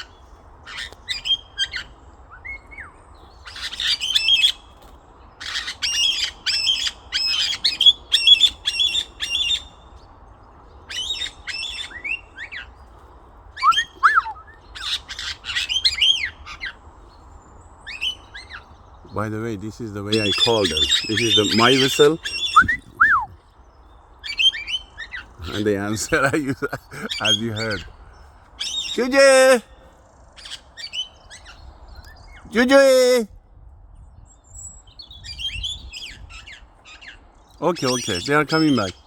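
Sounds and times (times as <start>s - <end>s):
macaws squawking: 0.0s - 2.0s, 3.5s - 4.7s, 5.4s - 9.7s, 10.9s - 12.8s, 13.6s - 16.8s, 17.9s - 23.4s, 24.2s - 28.0s, 28.6s - 29.8s, 36.0s - 39.0s.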